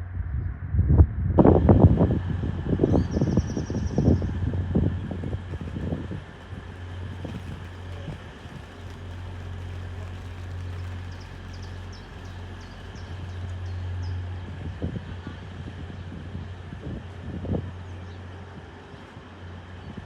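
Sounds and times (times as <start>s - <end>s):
train running with low hum: 0.0s - 20.0s.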